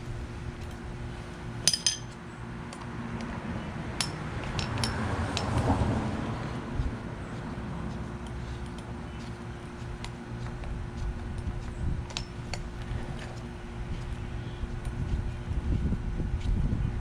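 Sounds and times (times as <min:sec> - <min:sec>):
metal tools clinking: 0:01.6 - 0:02.2.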